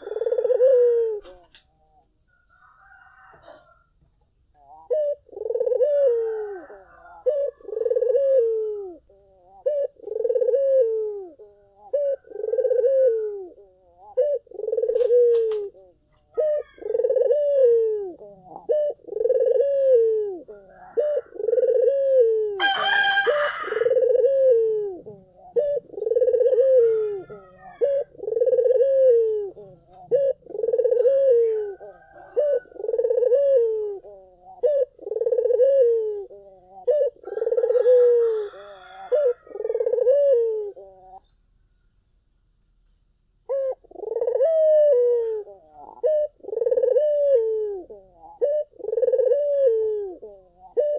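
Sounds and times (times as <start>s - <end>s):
doves cooing: 0.0s - 41.4s, 43.4s - 50.9s
faint bird chirps: 24.1s - 37.7s, 38.3s - 42.0s.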